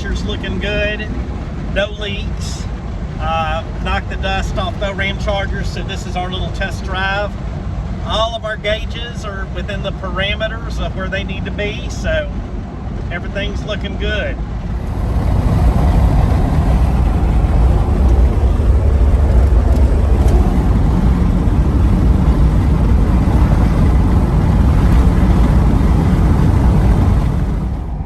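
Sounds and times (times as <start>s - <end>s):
engine and road noise in cab: 0.0s - 28.0s.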